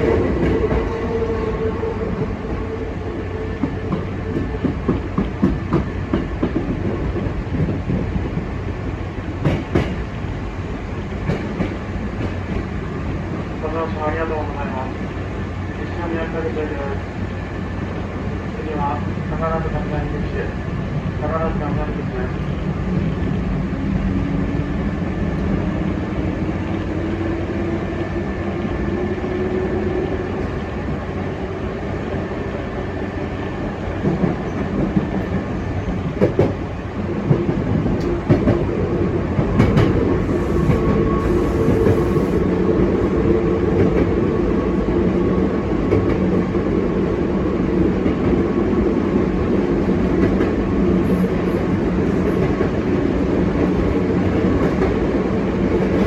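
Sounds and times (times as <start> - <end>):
train rumble: 0.0 - 56.0
clacks over rail joints: 3.6 - 8.5, 9.4 - 10.1, 11.2 - 12.7, 34.0 - 38.8, 39.4 - 41.0.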